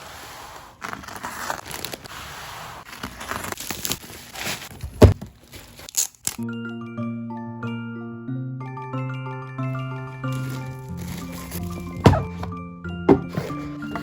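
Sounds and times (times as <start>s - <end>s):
packaging crinkling and rustling: 0.8s - 2.1s, 2.8s - 6.4s, 10.3s - 12.5s
heavy thump: 11.9s - 12.5s, 13.1s - 14.0s.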